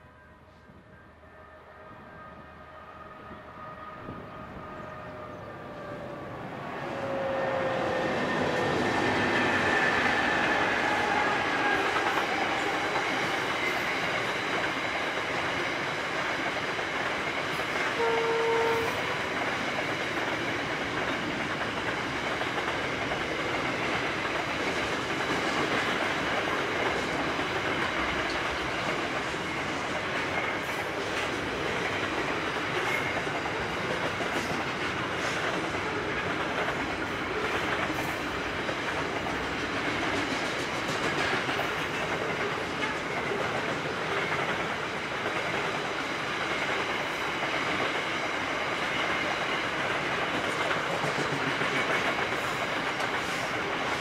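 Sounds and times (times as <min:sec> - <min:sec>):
train horn: 0:00.0 - 0:06.2, 0:06.8 - 0:08.4, 0:17.9 - 0:19.3
diesel locomotives passing: 0:00.0 - 0:54.0
train wagons rumbling and clacking: 0:03.2 - 0:54.0.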